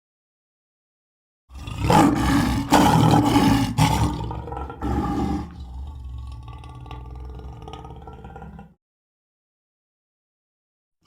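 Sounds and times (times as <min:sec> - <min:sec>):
monster voice roaring and growling: 0:01.5 - 0:08.7.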